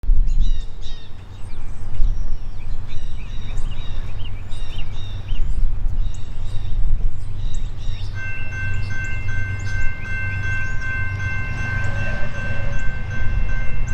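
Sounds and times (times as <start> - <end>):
steady low rumble: 0.1 - 13.9
small birds chirping: 0.3 - 13.9
locomotive air horn chord: 8.0 - 13.9.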